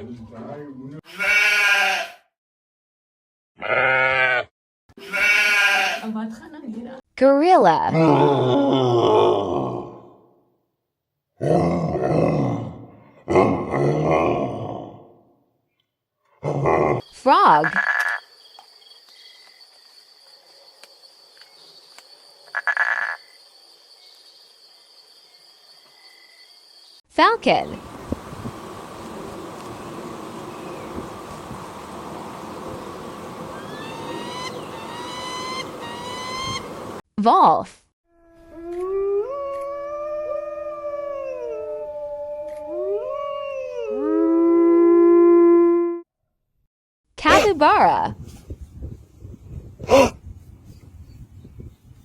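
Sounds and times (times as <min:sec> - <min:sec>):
frog croaking: 0:17.5 - 0:18.4, 0:22.4 - 0:23.4
wolves howling: 0:38.5 - 0:44.7.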